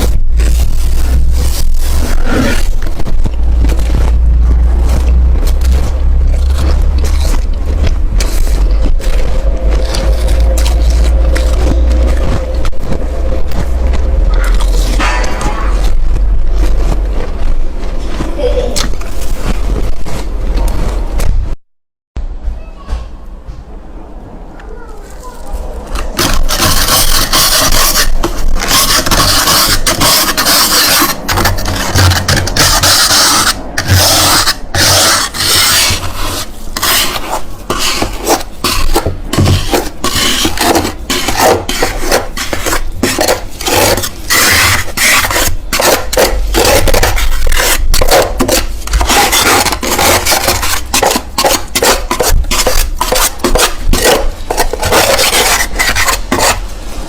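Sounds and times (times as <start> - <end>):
frost crunching while chewed: 0.0 - 21.3.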